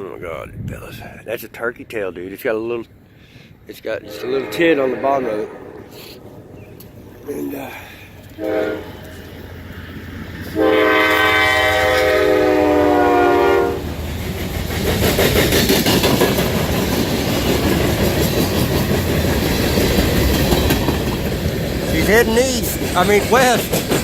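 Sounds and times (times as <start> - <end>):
locomotive horn blast: 4.0 - 7.5, 8.2 - 9.6, 10.4 - 13.9
train wheels rumbling on rails: 4.1 - 24.0.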